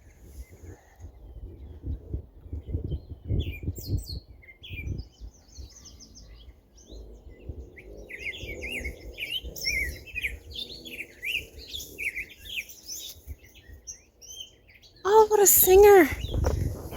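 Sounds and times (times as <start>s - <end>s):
small songbirds singing: 0.0s - 16.9s
low rumbling thumps: 16.2s - 16.9s.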